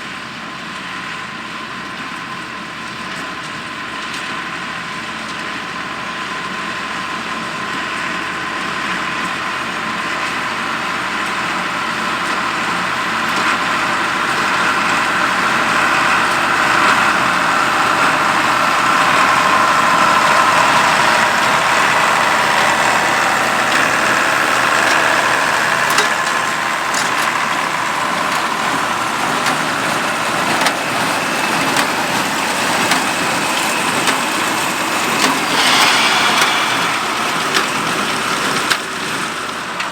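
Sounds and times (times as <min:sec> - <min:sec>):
tractor diesel engine running: 0:13.7 - 0:39.9.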